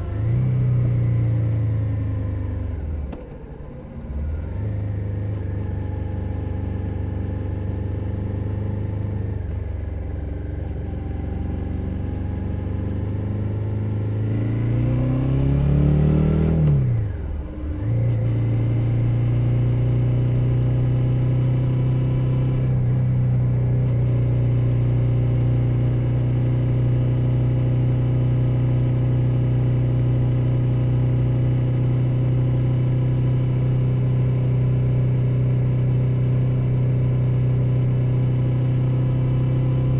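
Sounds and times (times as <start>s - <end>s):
motorcycle engine revving: 11.1s - 39.9s.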